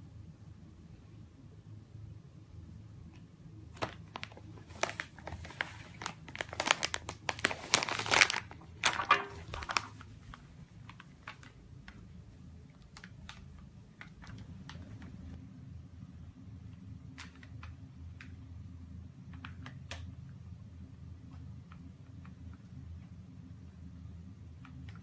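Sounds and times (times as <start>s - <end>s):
crinkling and crackling: 3.1s - 15.4s.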